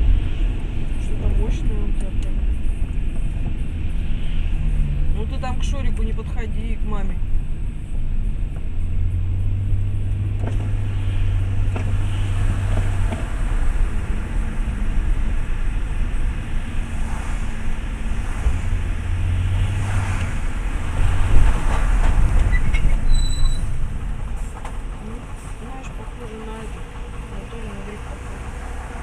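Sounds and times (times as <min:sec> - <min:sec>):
car engine and tyre drone: 0:00.0 - 0:29.0.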